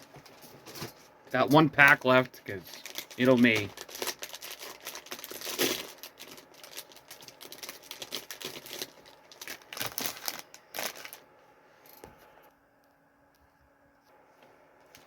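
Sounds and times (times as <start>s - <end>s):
plastic pouch crinkling: 2.6s - 11.3s.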